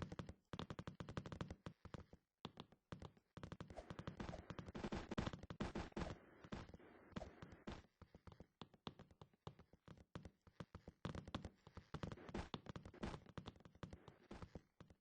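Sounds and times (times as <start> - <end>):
hands tapping and clicking: 0.0 - 15.0.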